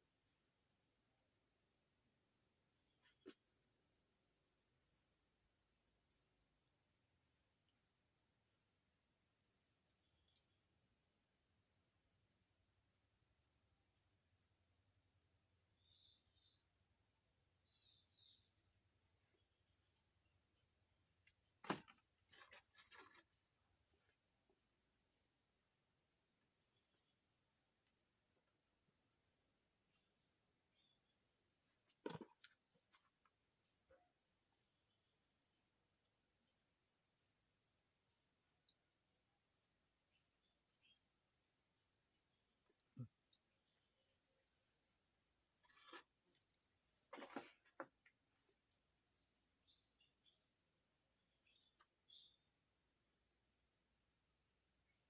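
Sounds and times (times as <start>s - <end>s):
insects droning: 0.0s - 55.0s
faint chirps: 42.1s - 43.7s.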